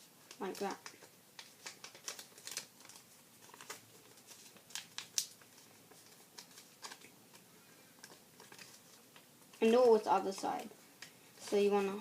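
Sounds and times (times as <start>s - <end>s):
paper folding ticks: 0.2s - 11.9s
paper rustling: 0.2s - 12.0s.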